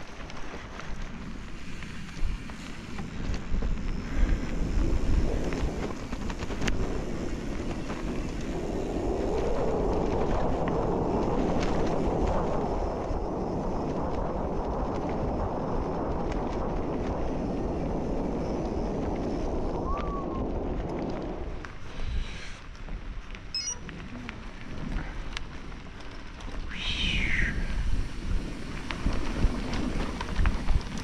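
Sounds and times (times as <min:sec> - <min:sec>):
steady rushing noise: 0:00.0 - 0:31.0
wind rumbling on microphone: 0:00.0 - 0:31.0
short squeak: 0:23.5 - 0:23.8.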